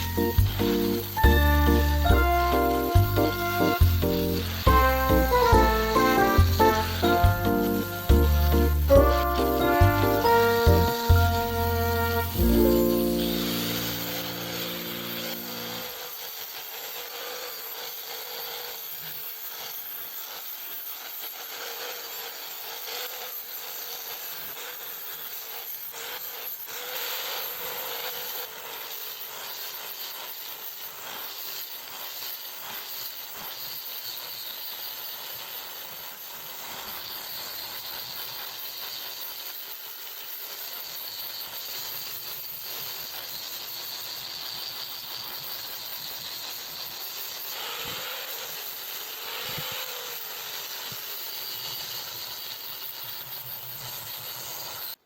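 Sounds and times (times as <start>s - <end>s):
background music: 0.0s - 15.8s.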